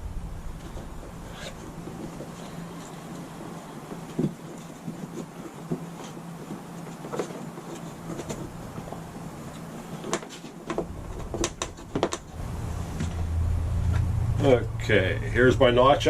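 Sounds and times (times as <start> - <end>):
low rumble: 0.0 - 1.9, 12.3 - 16.0
steady low hum: 0.0 - 16.0.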